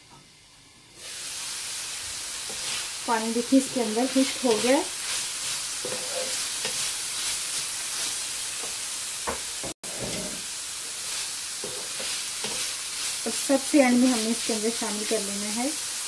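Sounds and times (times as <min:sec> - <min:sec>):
filling sizzling in a frying pan: 0:00.9 - 0:16.0
wooden spatula scraping a pan: 0:02.4 - 0:08.8, 0:09.8 - 0:15.3.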